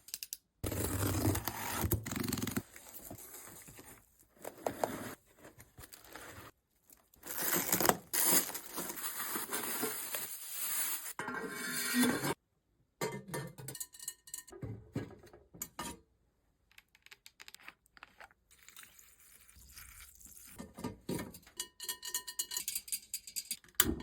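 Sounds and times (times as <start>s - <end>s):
cardboard tearing: 0.6s - 3.8s, 7.2s - 11.1s
packaging scraping and crinkling: 0.6s - 11.2s
packing tape tearing: 7.2s - 11.0s.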